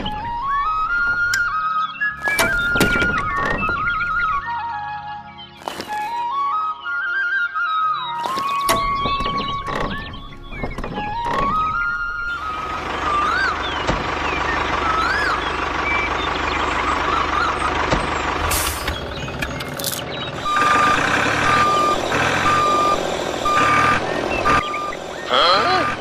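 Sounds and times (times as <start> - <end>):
vehicle engine running: 8.2 - 26.0
reversing alarm beeping: 20.4 - 26.0.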